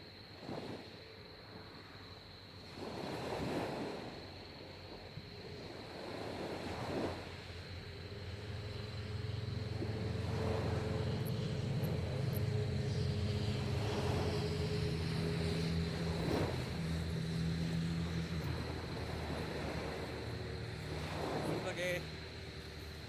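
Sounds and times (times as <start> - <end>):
waves washing: 2.6 - 23.0
motor engine running: 7.8 - 23.0.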